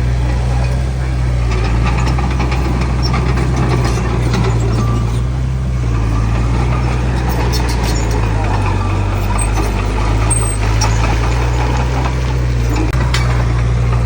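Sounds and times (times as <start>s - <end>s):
heavy diesel engine droning: 0.0s - 14.0s
light clicking and rattling: 0.3s - 14.0s.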